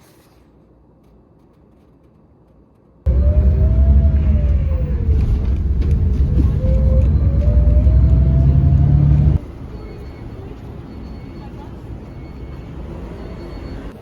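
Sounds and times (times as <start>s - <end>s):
wavering whine: 3.1s - 9.4s
loud vehicle rumble: 3.1s - 14.0s.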